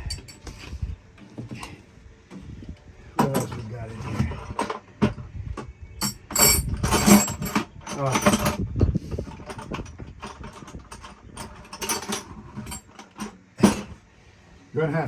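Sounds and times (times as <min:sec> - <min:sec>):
metal tools clattering: 0:00.0 - 0:00.8, 0:03.2 - 0:14.0.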